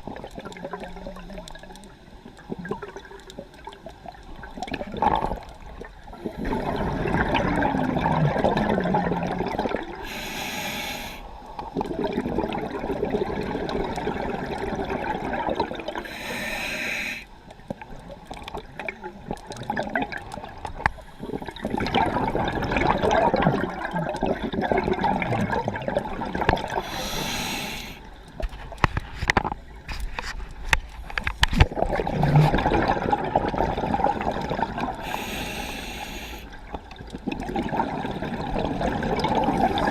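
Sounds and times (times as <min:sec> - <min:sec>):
exhaled bubbles rushing: 0:02.5 - 0:10.1, 0:11.6 - 0:16.2, 0:21.3 - 0:27.6, 0:31.6 - 0:35.2, 0:36.8 - 0:39.9
regulator inhalation hiss: 0:10.0 - 0:11.3, 0:16.0 - 0:17.3, 0:26.8 - 0:28.1, 0:35.0 - 0:36.6.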